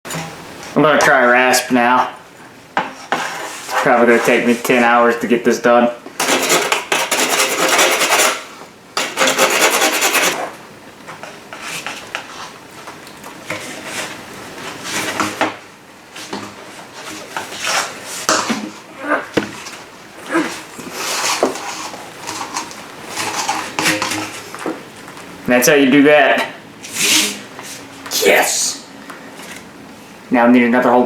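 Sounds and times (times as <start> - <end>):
rasp filing plastic pipe: 2.9 - 4.5, 6.2 - 10.6, 14.8 - 15.6, 20.8 - 24.8.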